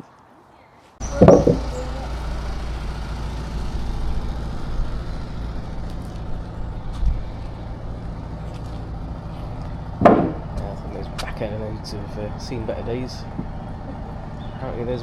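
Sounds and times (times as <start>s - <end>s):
dull thump: 1.0s - 2.2s, 6.0s - 11.5s, 13.2s - 14.3s
boat engine droning: 1.0s - 15.0s
sharp knock: 10.0s - 10.5s.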